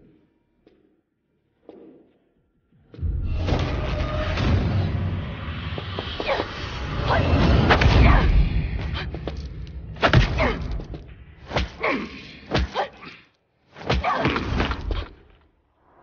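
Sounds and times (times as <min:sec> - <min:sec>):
punch thuds and whacks: 0:10.0 - 0:11.9, 0:12.5 - 0:12.9, 0:13.8 - 0:15.1.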